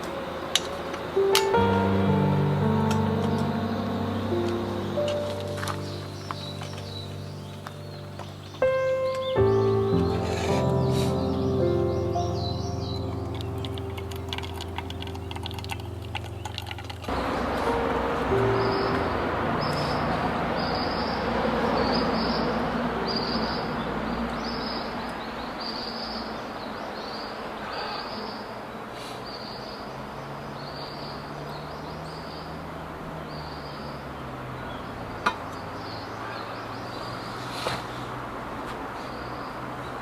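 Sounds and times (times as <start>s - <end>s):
background music: 0.4s - 21.4s.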